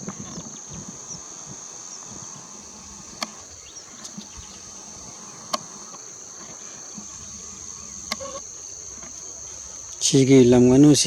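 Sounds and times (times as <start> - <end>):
sharp clicks: 0.0 - 10.2
insect chorus trilling: 0.0 - 11.0.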